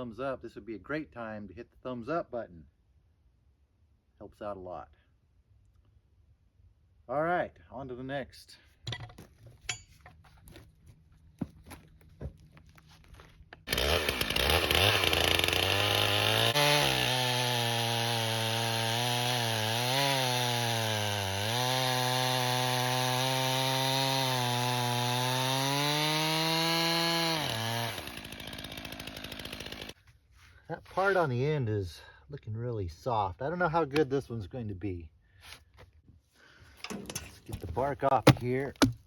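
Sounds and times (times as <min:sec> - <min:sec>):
small gasoline engine running: 0:13.7 - 0:19.3, 0:21.4 - 0:30.0.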